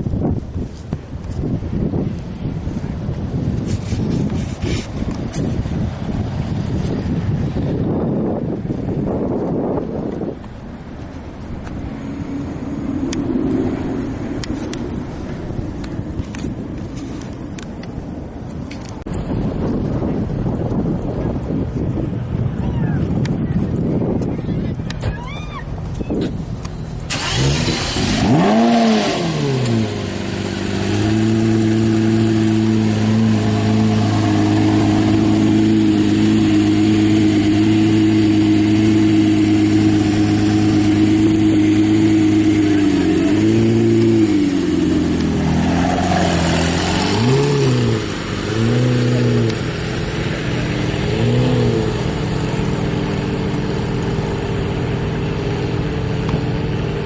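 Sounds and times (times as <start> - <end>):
car engine revving: 26.9 - 57.0
engine idling: 46.5 - 57.0.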